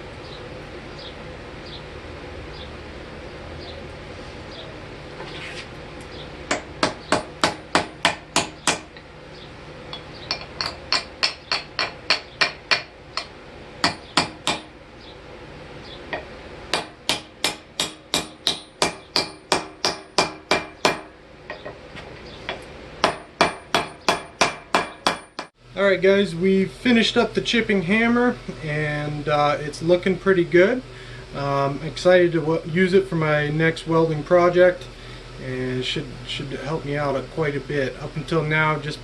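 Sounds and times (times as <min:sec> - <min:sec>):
hammer striking steel on anvil: 0:06.5 - 0:09.0, 0:09.9 - 0:14.7, 0:16.1 - 0:21.7, 0:23.0 - 0:25.6.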